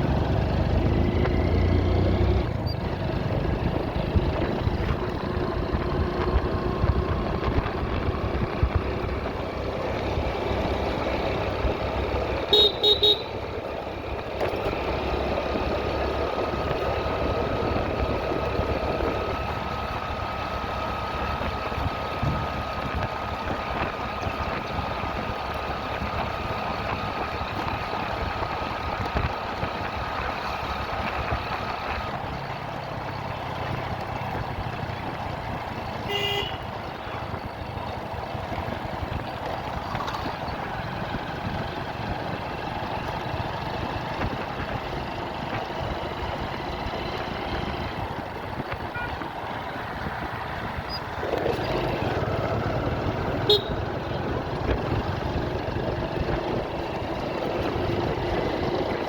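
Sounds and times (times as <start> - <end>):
motorcycle engine: 0.0 - 59.0
motorcycle horn toot: 12.4 - 13.4, 36.0 - 36.8, 48.9 - 49.3, 53.4 - 53.9.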